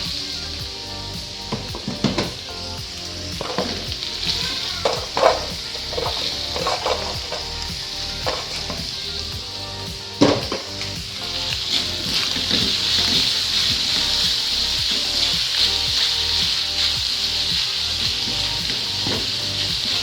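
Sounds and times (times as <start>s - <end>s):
food sizzling in a pan: 0.0s - 20.0s
utensil scraping and knocking pan: 4.8s - 7.4s.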